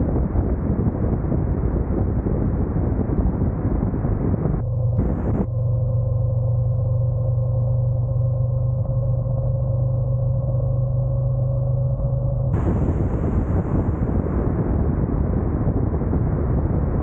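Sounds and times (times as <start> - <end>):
rush of wind noise: 0.0 - 5.5, 12.5 - 17.0.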